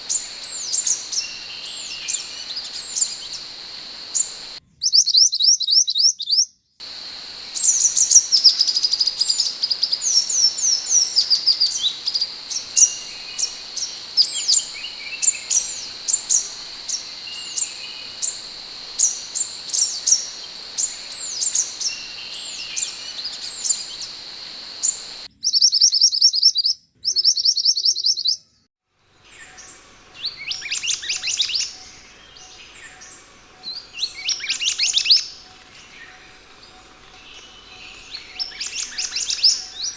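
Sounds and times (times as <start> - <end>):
bird chirping: 0.0 - 4.6, 6.8 - 25.3
steady high whine: 0.0 - 4.6, 6.8 - 25.3.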